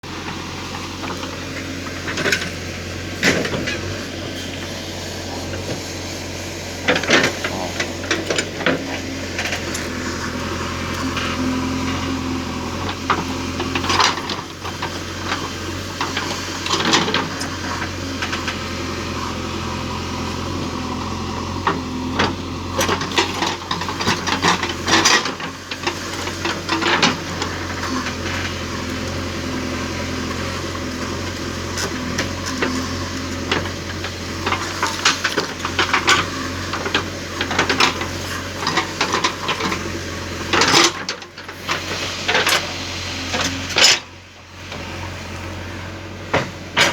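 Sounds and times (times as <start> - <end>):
low machine hum: 0.0 - 46.9.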